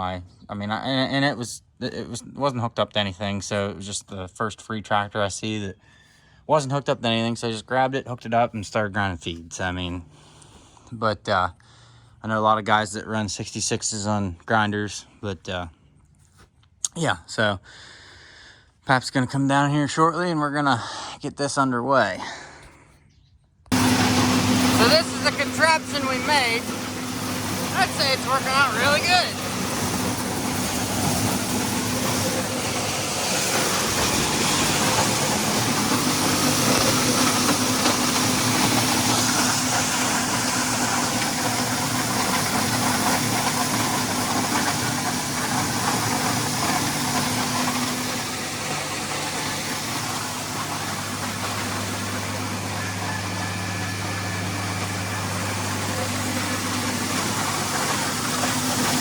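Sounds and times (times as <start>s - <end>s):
feed grinder grinding: 23.7s - 59.0s
tractor diesel engine: 23.7s - 59.0s.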